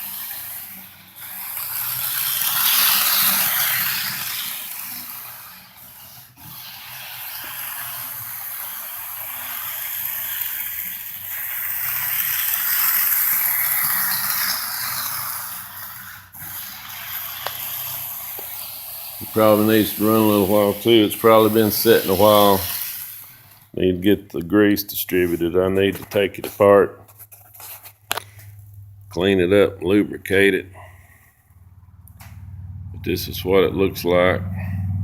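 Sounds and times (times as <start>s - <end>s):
model train motor whirring: 0.0s - 23.8s.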